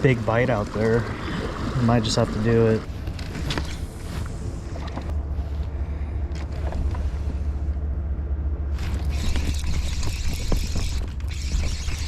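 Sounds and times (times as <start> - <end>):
kayak motor humming: 8.8 - 12.0.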